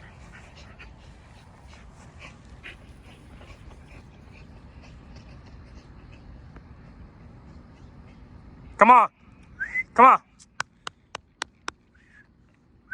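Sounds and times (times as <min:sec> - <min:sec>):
dogs panting: 0:00.0 - 0:09.6.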